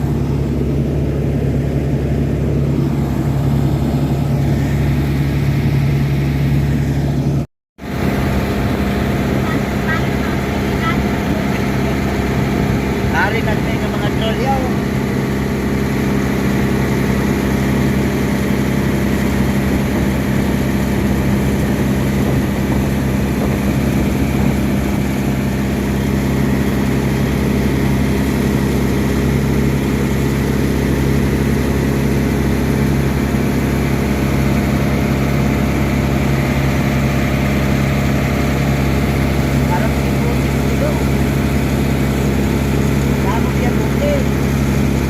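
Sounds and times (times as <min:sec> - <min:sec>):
large engine low drone: 0:00.0 - 0:45.0.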